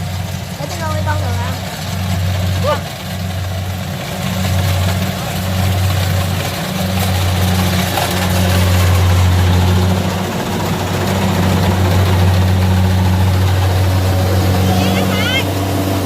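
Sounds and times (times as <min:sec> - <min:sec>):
combine harvester engine drone: 0:00.0 - 0:16.0.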